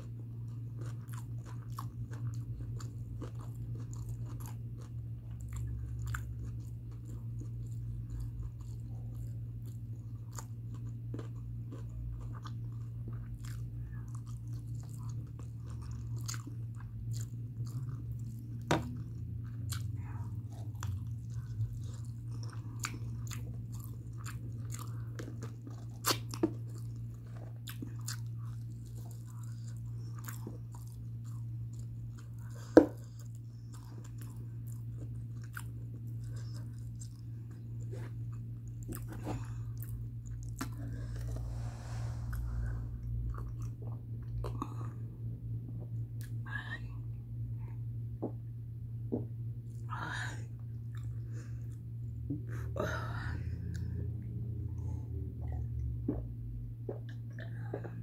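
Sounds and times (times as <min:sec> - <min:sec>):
close-up chewing and biting: 0:00.0 - 0:45.0
low hum: 0:00.0 - 0:58.0.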